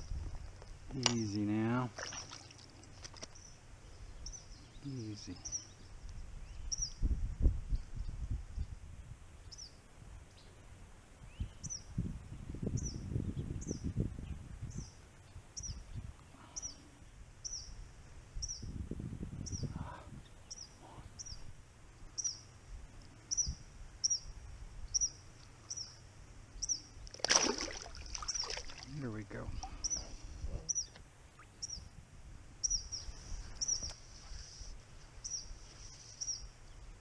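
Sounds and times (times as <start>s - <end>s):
low rumbling microphone noise: 0.0s - 22.0s
bird chirping: 3.2s - 7.0s, 19.4s - 21.5s, 22.2s - 22.5s, 23.2s - 24.3s, 24.9s - 26.9s, 28.2s - 31.9s, 32.6s - 34.6s.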